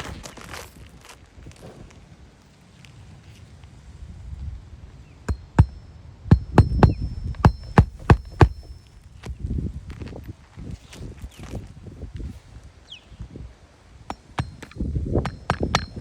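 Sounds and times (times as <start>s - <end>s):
nails driven into shingle: 5.3s - 8.8s, 14.1s - 16.0s.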